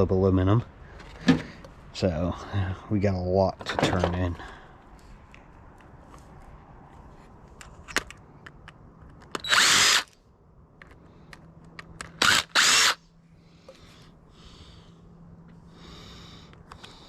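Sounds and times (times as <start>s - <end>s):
cordless drill running: 9.4s - 10.1s, 12.2s - 13.0s.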